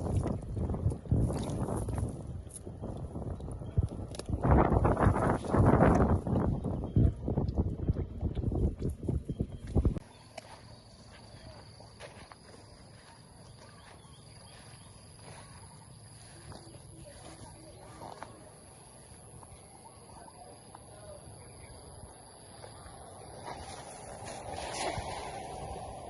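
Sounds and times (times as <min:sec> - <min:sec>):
high-pitched insect drone: 0:10.0 - 0:26.0.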